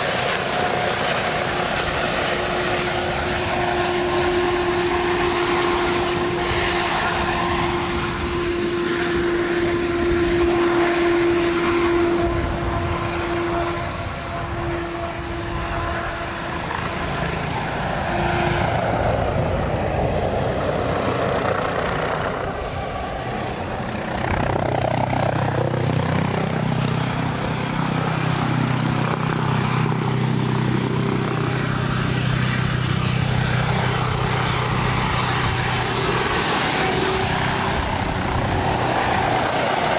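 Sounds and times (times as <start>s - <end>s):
aircraft engine whine: 0.0s - 39.9s
aircraft passing by: 0.0s - 39.9s.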